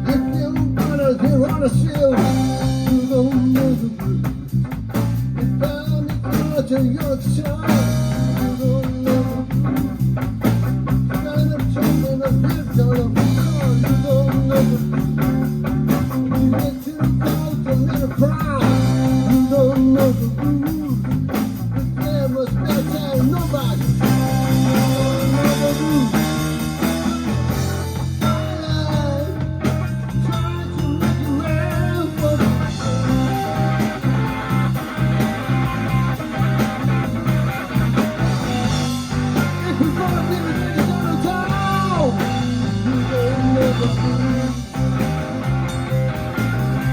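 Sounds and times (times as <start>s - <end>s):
bass line: 0.0s - 46.9s
blues band playing: 0.0s - 46.9s
guitar solo with bent notes: 18.3s - 46.9s.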